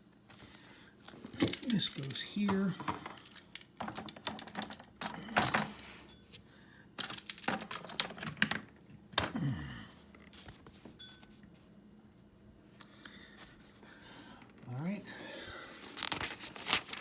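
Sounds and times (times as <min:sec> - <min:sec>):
plastic track pieces clicking: 0:01.4 - 0:05.7, 0:07.0 - 0:09.3.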